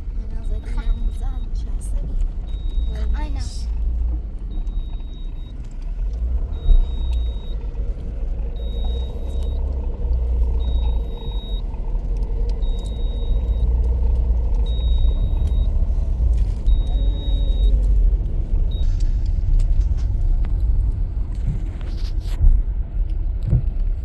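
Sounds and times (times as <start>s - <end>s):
vehicle rumble: 0.0s - 24.0s
high electronic beep: 16.7s - 17.8s.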